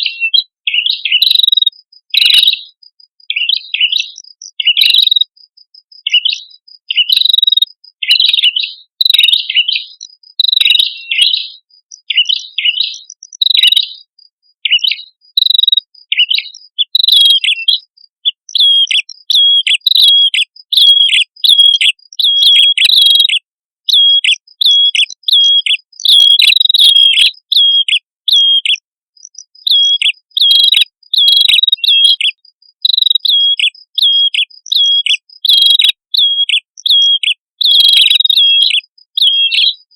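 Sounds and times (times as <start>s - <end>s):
bird sharp hooked chirps: 0.0s - 39.9s.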